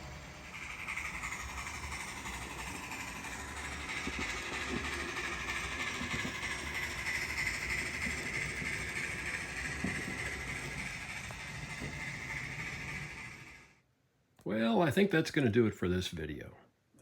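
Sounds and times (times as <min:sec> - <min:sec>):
model train whirring: 0:00.0 - 0:13.8.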